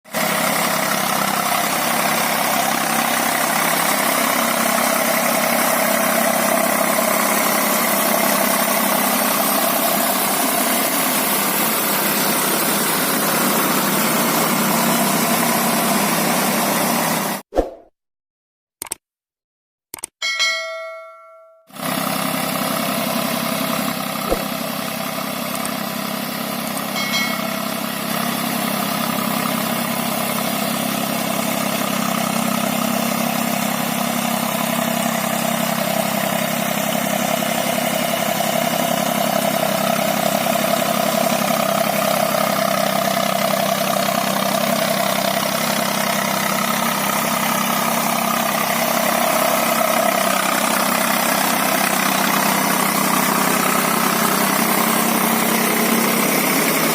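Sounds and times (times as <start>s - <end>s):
tractor diesel engine running: 0.1s - 17.4s, 20.6s - 56.9s
short click: 18.8s - 19.0s, 19.9s - 20.2s, 24.3s - 24.5s.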